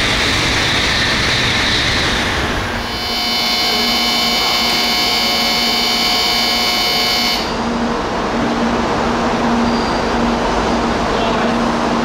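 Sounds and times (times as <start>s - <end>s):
train rushing past: 0.0s - 12.0s
high whining tones: 0.8s - 8.0s.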